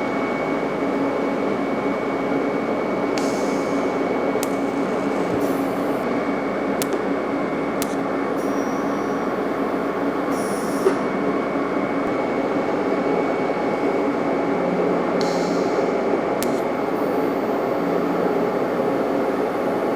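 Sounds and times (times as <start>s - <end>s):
welding arc hiss and hum: 2.9s - 12.3s, 15.2s - 19.9s
sharp tick: 4.4s - 4.7s, 6.8s - 7.1s, 16.4s - 16.7s.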